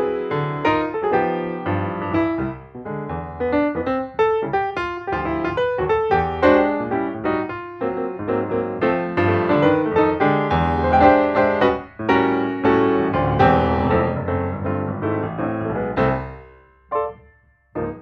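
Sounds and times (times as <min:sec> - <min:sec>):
piano playing quick notes: 0:00.0 - 0:18.0.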